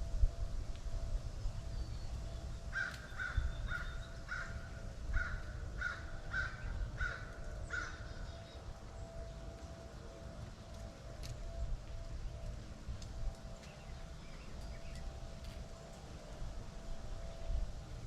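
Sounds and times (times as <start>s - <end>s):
low outdoor rumble: 0.0s - 18.0s
crow cawing: 2.7s - 8.4s.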